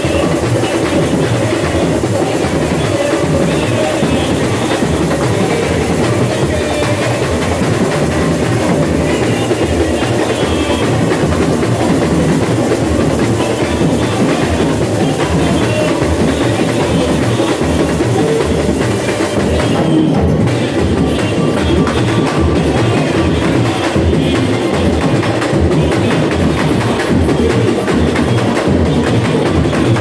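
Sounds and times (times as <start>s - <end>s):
samba drums and percussion: 0.0s - 30.0s.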